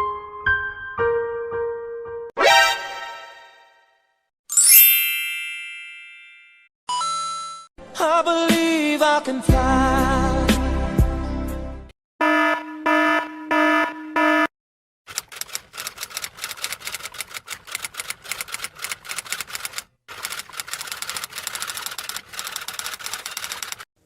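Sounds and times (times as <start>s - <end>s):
rapid typing clicks: 15.1s - 23.9s.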